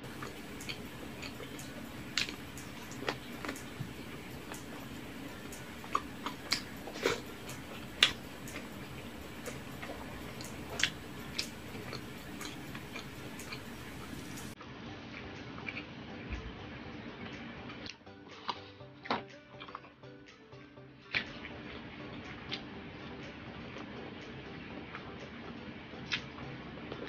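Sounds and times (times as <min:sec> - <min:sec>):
mouth clicks: 0:00.0 - 0:14.5
low steady hum: 0:00.0 - 0:17.7.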